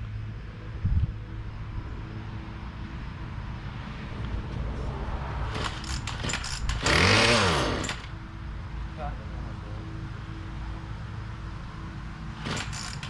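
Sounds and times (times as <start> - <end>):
sharp clicks: 5.6 - 8.1
small engine idling: 5.6 - 8.2, 12.3 - 13.0.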